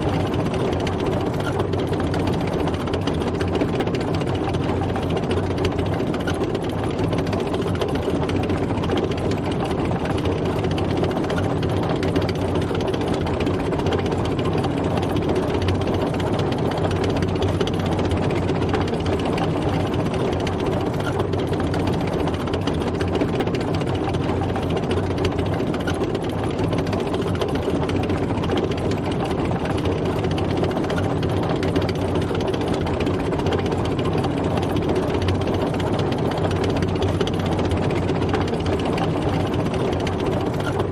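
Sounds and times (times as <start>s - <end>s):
mechanical clatter: 0.0s - 40.9s
tank engine running: 0.0s - 40.9s.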